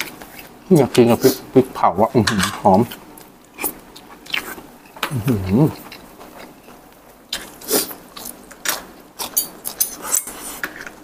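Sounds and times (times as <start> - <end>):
crunchy chewing with bones: 3.2 - 11.0.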